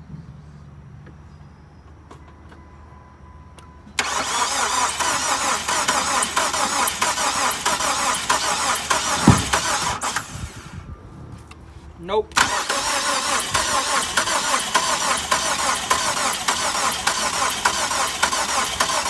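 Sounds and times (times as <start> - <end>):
car starter cranking engine: 4.0 - 10.7, 12.4 - 19.0.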